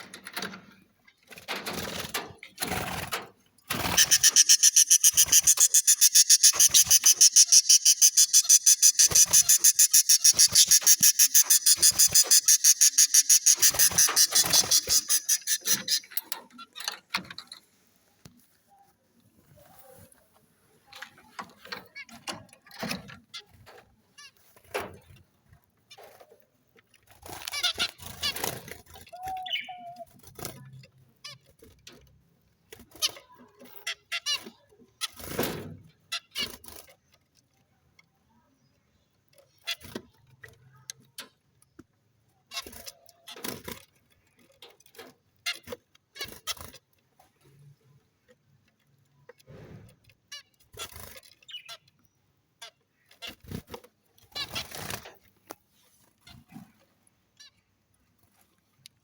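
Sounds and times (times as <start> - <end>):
parrots chirping and screeching: 3.7 - 16.2.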